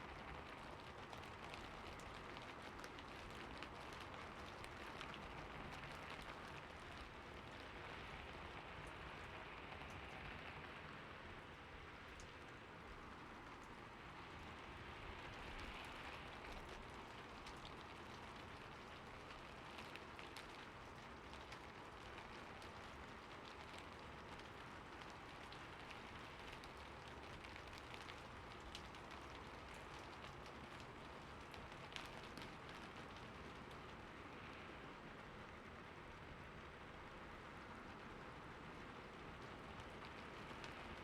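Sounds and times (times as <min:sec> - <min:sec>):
soft rain falling: 0:00.0 - 0:41.0.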